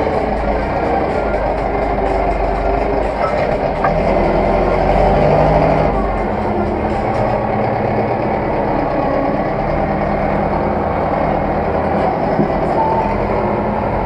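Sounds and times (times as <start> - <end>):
tractor diesel engine droning: 0.0 - 14.0.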